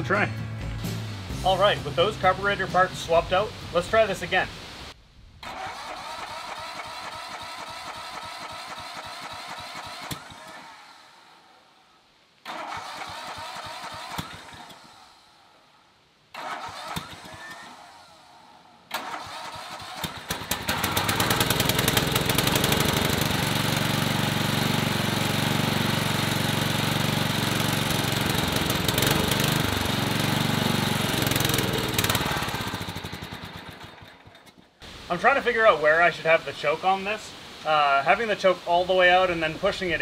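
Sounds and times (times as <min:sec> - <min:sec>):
lawn tractor engine running: 0:05.4 - 0:10.8, 0:12.5 - 0:15.1, 0:16.4 - 0:18.0, 0:18.9 - 0:34.8
electric starter cranking: 0:05.4 - 0:10.9, 0:12.4 - 0:15.2, 0:16.3 - 0:18.1, 0:18.9 - 0:34.8.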